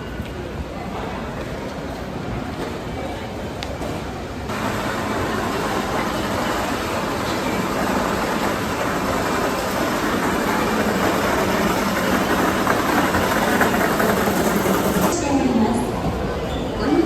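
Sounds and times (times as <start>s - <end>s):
train rushing noise: 4.5s - 15.2s.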